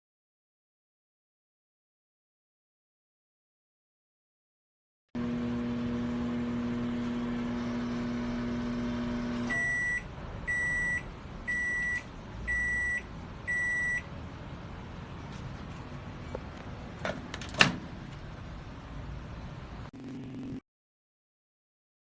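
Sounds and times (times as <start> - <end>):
microwave oven humming: 5.2 - 14.1.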